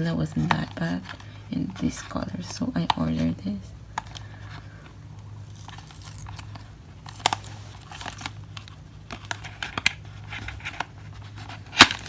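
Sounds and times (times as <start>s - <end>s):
steady low hum: 0.0s - 12.0s
packaging crinkling: 3.9s - 12.0s.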